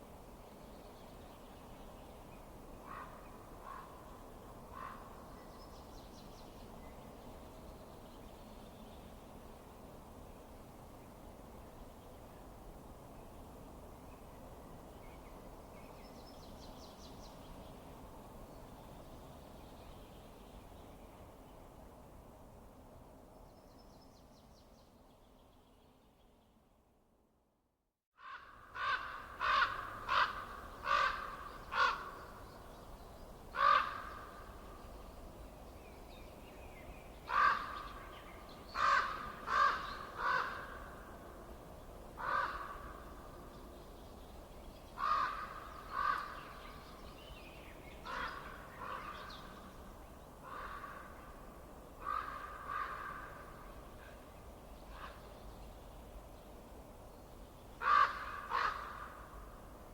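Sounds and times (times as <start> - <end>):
faint low hiss: 28.6 - 59.9.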